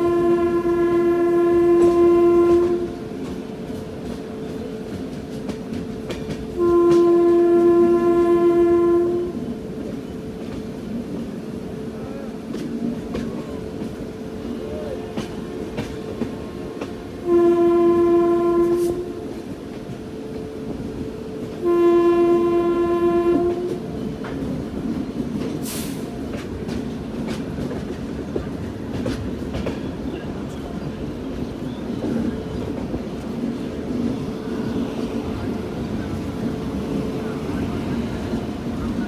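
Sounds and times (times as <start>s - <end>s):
train horn blasts: 0.0s - 3.8s, 6.3s - 9.9s, 15.1s - 24.6s
train rumble and rail clatter: 0.0s - 39.0s.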